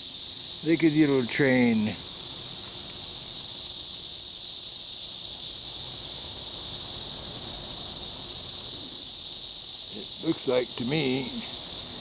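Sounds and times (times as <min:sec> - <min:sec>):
cicadas droning: 0:00.0 - 0:12.0.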